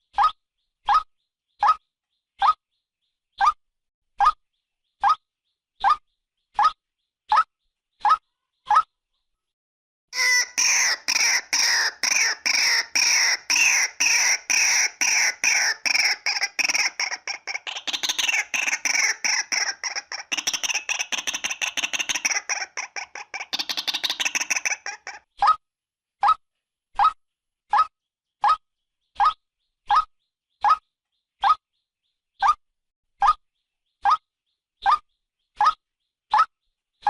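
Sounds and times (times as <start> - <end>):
waterhen harsh calls: 10.2 - 25.2.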